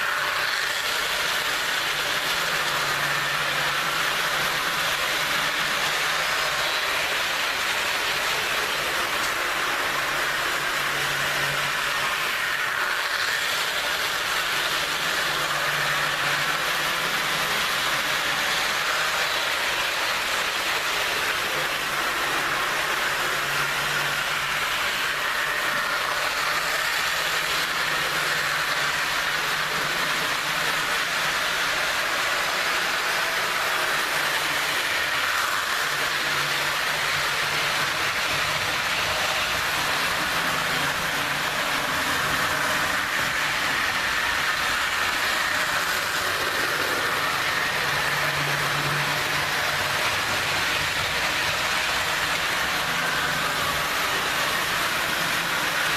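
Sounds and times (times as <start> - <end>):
low hum of passing trains: 0.0 - 55.9
model train motor whirring: 0.0 - 55.9.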